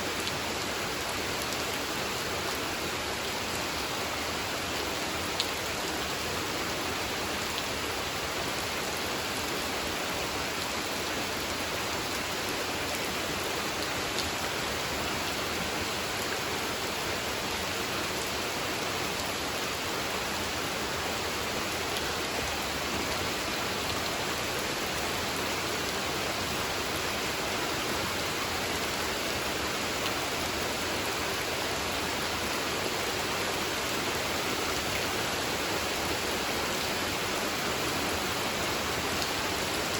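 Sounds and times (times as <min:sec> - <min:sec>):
rain falling on a pond: 0:00.0 - 0:39.9.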